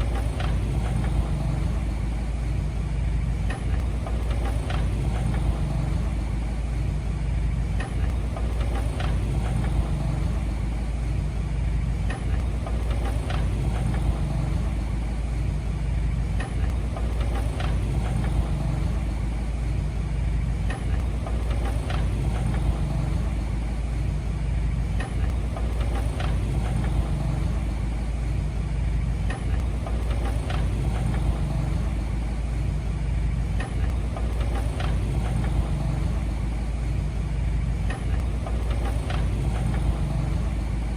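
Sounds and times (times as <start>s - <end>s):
heavy machine engine running: 0.0s - 40.9s.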